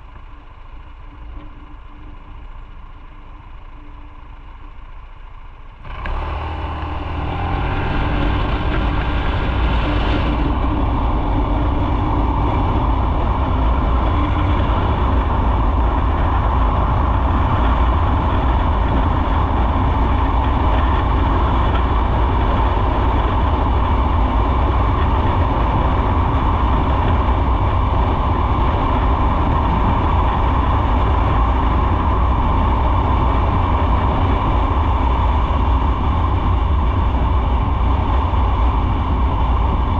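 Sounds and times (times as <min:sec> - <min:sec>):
motorcycle engine pulling away: 0:05.8 - 0:19.4
riding noise rush: 0:05.8 - 0:39.9.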